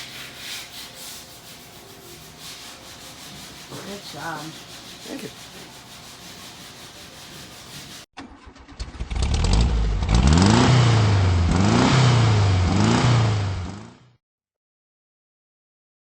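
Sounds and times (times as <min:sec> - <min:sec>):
low shop background: 0:00.0 - 0:08.1
engine cranking and revving: 0:08.2 - 0:14.0.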